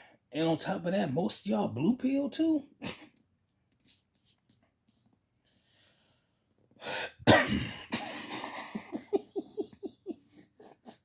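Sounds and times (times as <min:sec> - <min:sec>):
intake of breath: 0:05.5 - 0:07.2
man coughing: 0:07.2 - 0:09.6
man chuckling: 0:07.9 - 0:11.0.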